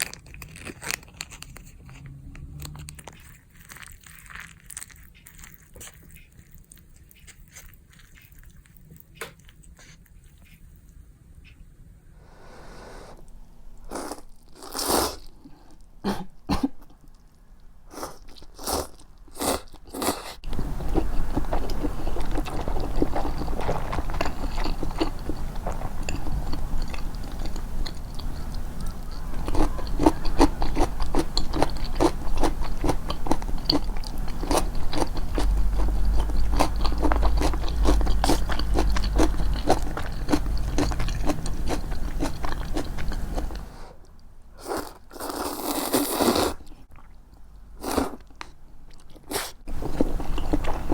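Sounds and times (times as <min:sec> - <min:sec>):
chewing and crunching: 0:00.0 - 0:11.0, 0:16.8 - 0:50.9
steady low rumble: 0:30.5 - 0:43.7.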